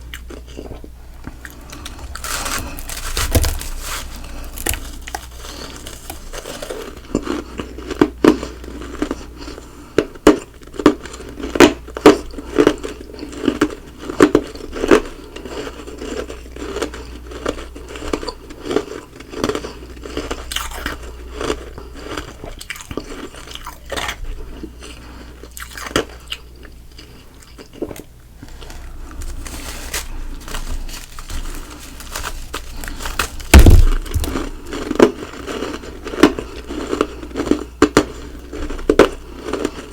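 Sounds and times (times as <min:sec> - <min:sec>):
chewing ice crunches: 0:00.0 - 0:39.9
loud low thump: 0:33.5 - 0:34.3.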